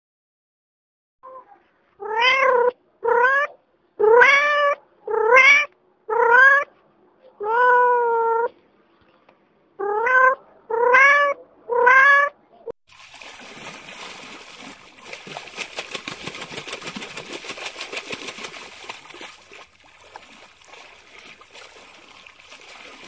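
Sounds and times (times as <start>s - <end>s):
cat meowing: 2.0s - 6.7s, 7.4s - 8.5s, 9.8s - 12.4s.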